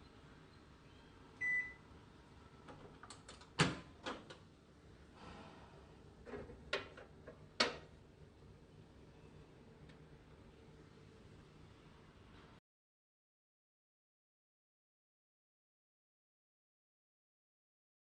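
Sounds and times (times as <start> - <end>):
microwave oven beep: 0.8 - 1.9.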